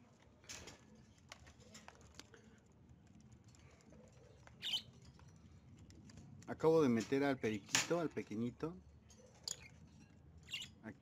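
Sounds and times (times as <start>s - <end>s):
clicks and rustles at birdcage: 0.1s - 10.4s
bird chirp: 4.6s - 5.0s, 10.4s - 10.8s.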